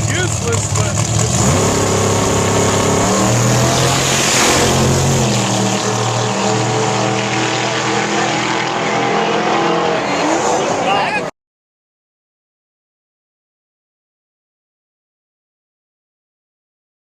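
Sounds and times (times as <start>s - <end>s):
race car engine running: 0.0s - 10.8s.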